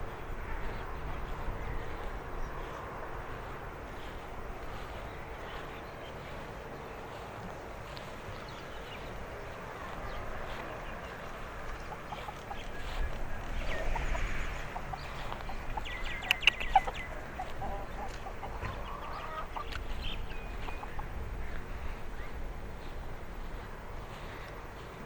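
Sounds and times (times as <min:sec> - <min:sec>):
birds clucking calls: 0:00.0 - 0:25.0
outdoor hush: 0:00.0 - 0:25.0
sharp clicks: 0:16.1 - 0:16.9.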